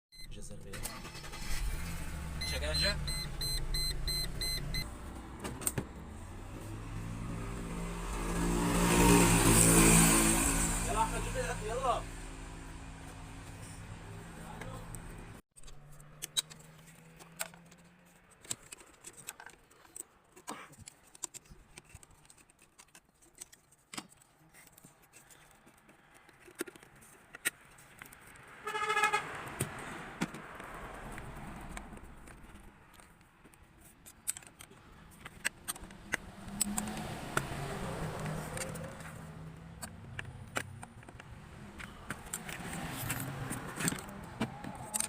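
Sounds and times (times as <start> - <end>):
car horn toot: 28.6 - 29.3.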